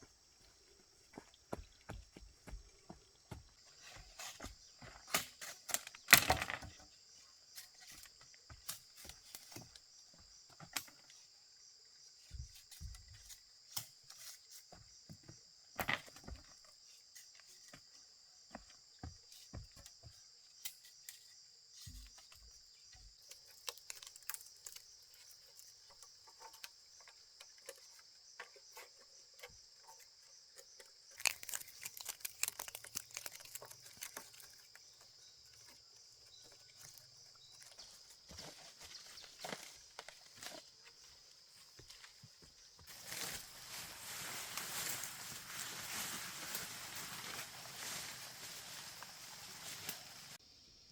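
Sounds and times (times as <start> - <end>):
rustling: 31.1 - 50.4.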